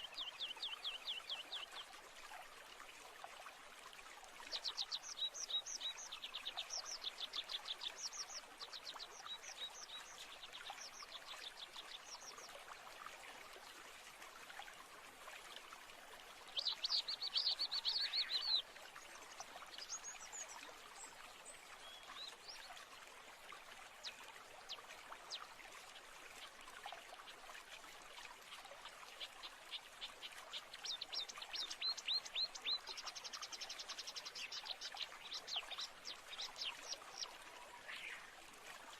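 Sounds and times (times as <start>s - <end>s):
birds singing: 16.6s - 18.6s.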